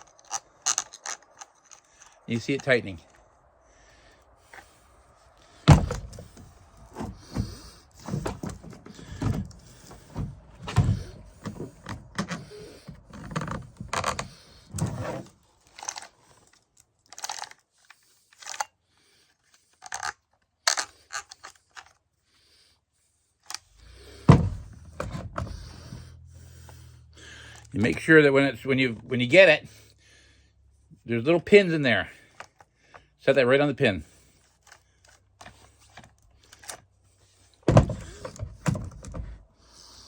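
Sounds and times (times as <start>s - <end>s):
metal clunks rattles and scrapes: 5.5s - 16.1s, 23.5s - 28.3s, 37.5s - 39.4s.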